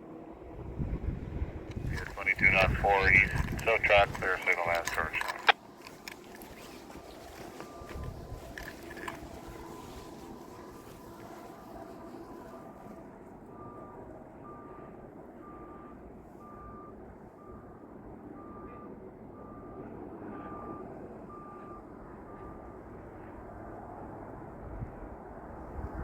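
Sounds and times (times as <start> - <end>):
electronic warning beeps: 1.8 - 6.0.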